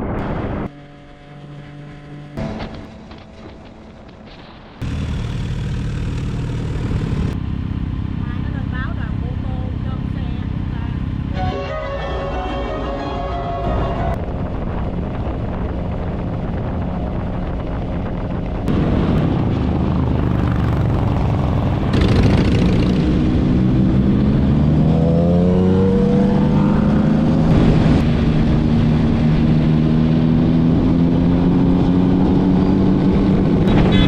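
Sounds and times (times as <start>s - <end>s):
motorcycle engine running: 0.3s - 11.4s, 14.1s - 34.0s
wind rush: 13.2s - 34.0s.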